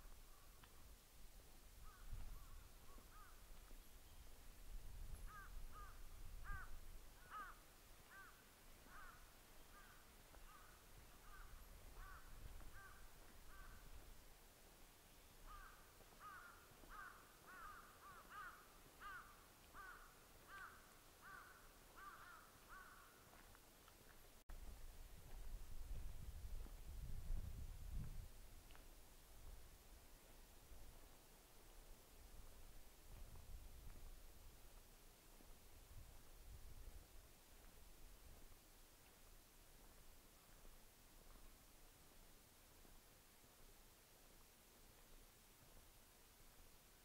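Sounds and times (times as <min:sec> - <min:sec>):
bird calling faintly: 0:00.0 - 0:01.0, 0:01.8 - 0:24.4.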